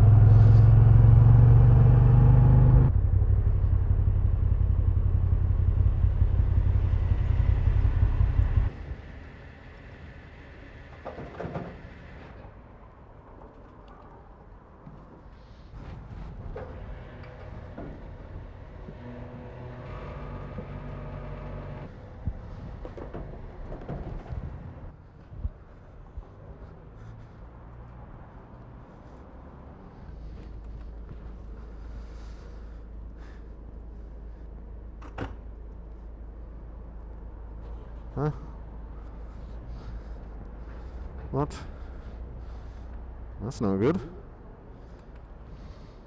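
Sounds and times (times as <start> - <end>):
motorcycle engine running: 0.0 - 8.8
low wind rumble: 0.0 - 11.0, 21.9 - 46.0.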